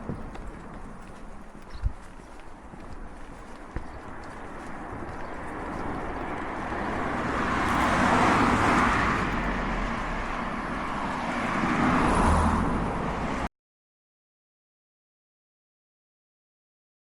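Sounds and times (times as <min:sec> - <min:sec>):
car passing: 0:00.0 - 0:13.5
vehicle approaching: 0:00.0 - 0:13.5.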